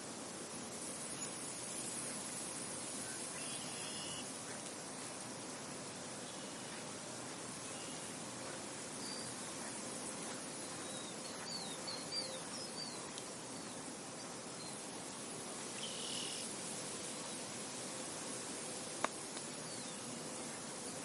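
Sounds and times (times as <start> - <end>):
small birds chirping: 6.2 - 16.5, 19.0 - 21.0.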